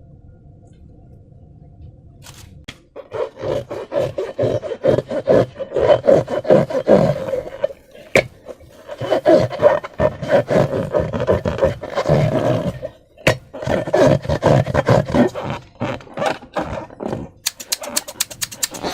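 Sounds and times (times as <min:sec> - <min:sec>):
sharp click: 0:17.5 - 0:18.9.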